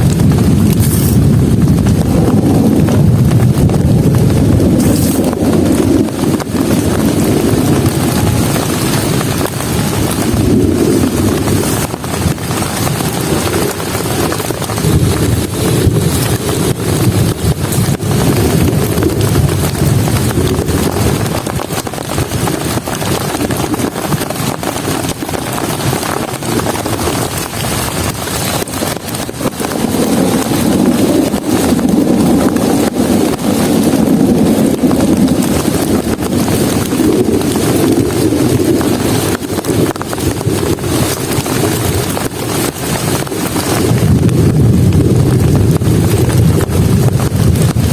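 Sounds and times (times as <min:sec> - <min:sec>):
deep rumble: 0:00.0 - 0:47.9
heavy rain pouring: 0:00.0 - 0:47.9.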